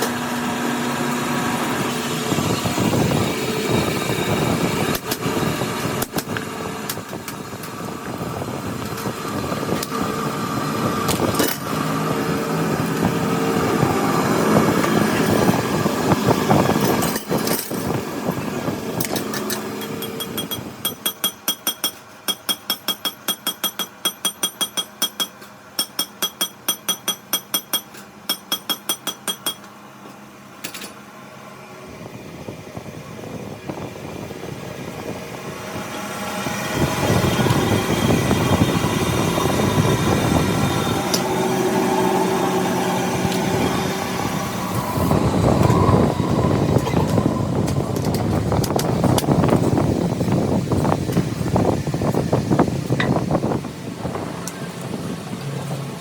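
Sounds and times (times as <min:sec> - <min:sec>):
steady machine noise: 0:00.0 - 0:56.0
sharp metallic ticks: 0:20.0 - 0:29.7.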